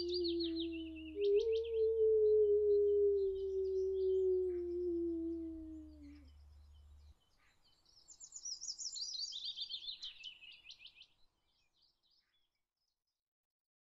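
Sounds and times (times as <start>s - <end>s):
songbird trilling: 0.0s - 6.3s
low hum: 0.0s - 7.1s
faint bird chirps: 0.0s - 11.0s.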